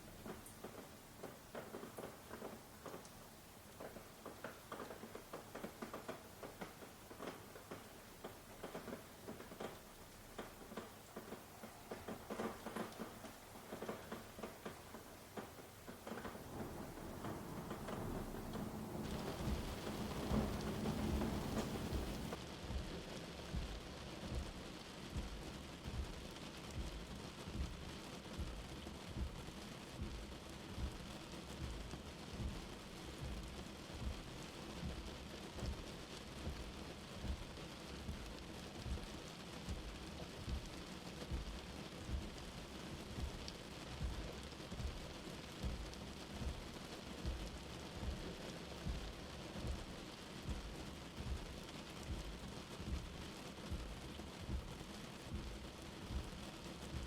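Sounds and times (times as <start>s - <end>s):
steady rain falling: 0.0s - 57.0s
dull low thuds: 15.8s - 22.9s, 23.5s - 29.4s, 30.0s - 39.1s, 39.7s - 42.4s, 43.0s - 57.0s.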